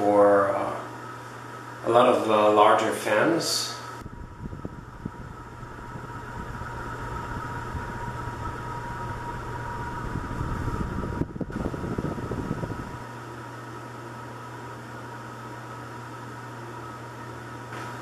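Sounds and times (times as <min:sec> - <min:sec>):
ceiling fan motor hum: 0:00.0 - 0:18.0
rush of moving air: 0:04.0 - 0:13.0.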